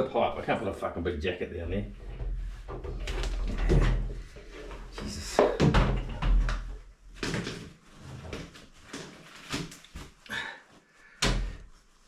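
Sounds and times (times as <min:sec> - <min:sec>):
knocks and scrapes: 0:01.6 - 0:10.2.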